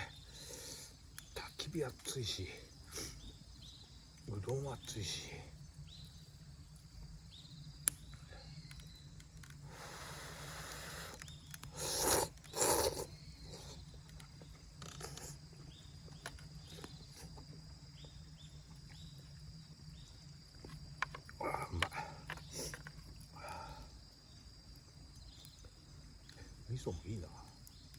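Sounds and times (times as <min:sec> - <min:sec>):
person slurping noodles: 0:11.7 - 0:13.1.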